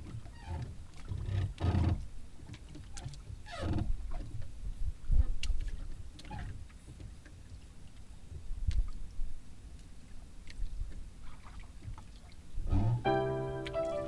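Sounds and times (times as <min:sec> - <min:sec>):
water sloshing against boat hull: 0:00.0 - 0:14.0
low knock: 0:12.7 - 0:13.2.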